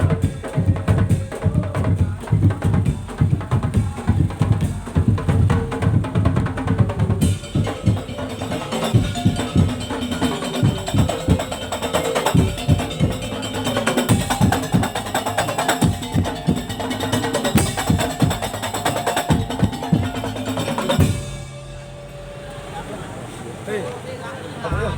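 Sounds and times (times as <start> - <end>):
wooden slit drums and drums: 0.0 - 22.9
pitched melody line: 7.2 - 23.1.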